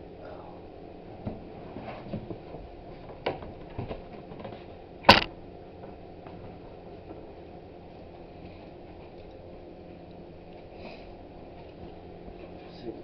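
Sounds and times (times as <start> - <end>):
sharp loud knock: 5.1 - 5.3.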